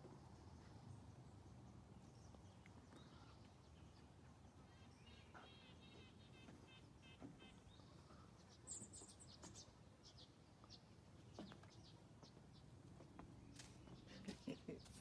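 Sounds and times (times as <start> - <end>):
faint bird chirps: 2.6 - 10.8.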